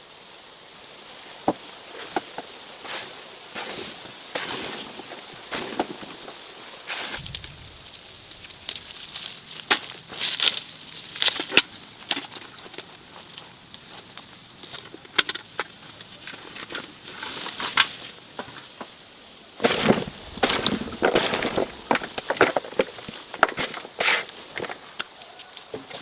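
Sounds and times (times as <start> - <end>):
faint hiss: 0.0 - 25.7
sharp crackles and snaps: 6.2 - 18.1, 20.0 - 25.7.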